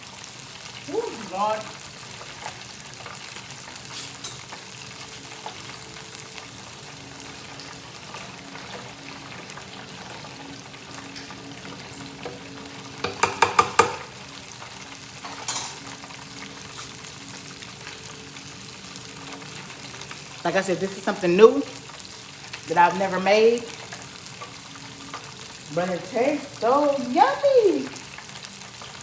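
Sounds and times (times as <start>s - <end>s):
oil sizzling in a deep fryer: 0.0s - 29.0s.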